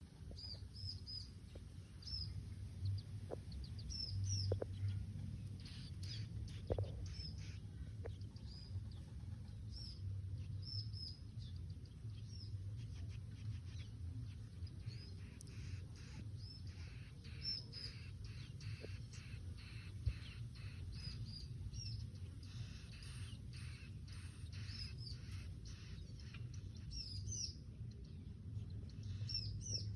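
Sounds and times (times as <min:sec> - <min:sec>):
low steady rumble: 0:00.0 - 0:29.9
bird chirping: 0:00.3 - 0:29.9.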